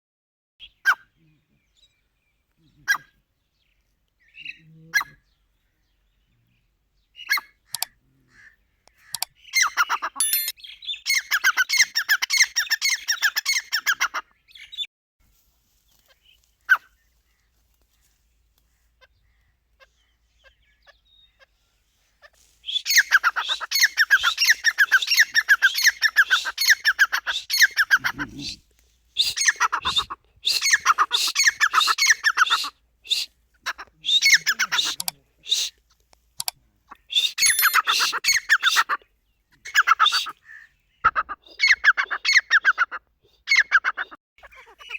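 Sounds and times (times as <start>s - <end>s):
francolin calling shrill notes: 10.2s - 10.6s, 37.2s - 38.5s.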